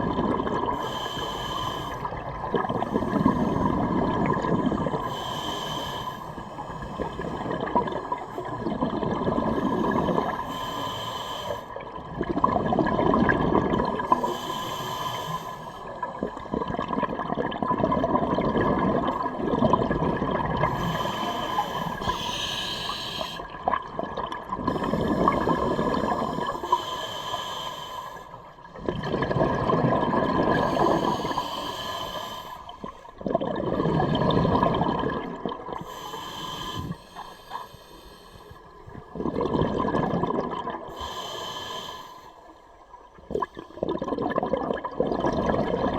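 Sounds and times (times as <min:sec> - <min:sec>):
exhaled bubbles rushing: 0:00.0 - 0:00.9, 0:02.0 - 0:05.1, 0:07.0 - 0:10.4, 0:11.8 - 0:14.2, 0:16.0 - 0:21.1, 0:23.4 - 0:26.6, 0:28.6 - 0:31.4, 0:32.8 - 0:36.0, 0:38.8 - 0:40.9, 0:43.1 - 0:45.9
regulator inhale hiss: 0:00.8 - 0:02.2, 0:05.0 - 0:07.4, 0:09.6 - 0:11.8, 0:14.1 - 0:16.0, 0:20.7 - 0:23.6, 0:24.7 - 0:28.4, 0:30.6 - 0:33.1, 0:35.8 - 0:38.8, 0:40.9 - 0:42.7.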